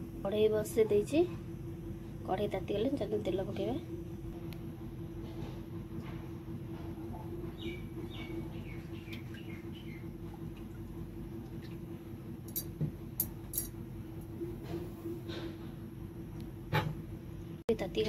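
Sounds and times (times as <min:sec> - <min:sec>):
steady low hum: 0:00.0 - 0:18.0
bird chirps: 0:07.6 - 0:10.0.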